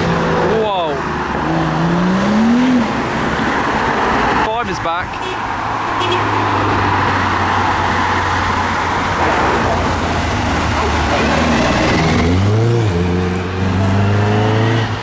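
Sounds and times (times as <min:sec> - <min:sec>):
traffic and tyre noise: 0:00.0 - 0:15.0
car engine accelerating: 0:06.3 - 0:15.0.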